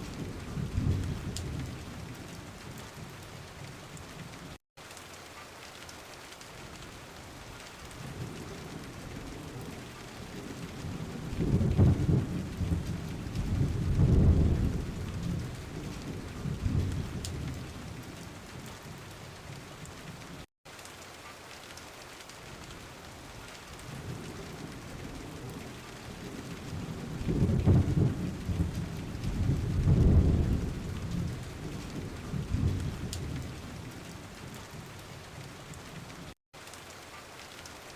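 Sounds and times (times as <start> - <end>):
thunder rumbling: 0.0 - 3.1, 8.0 - 19.5, 23.9 - 34.9
steady rain falling: 0.0 - 37.9.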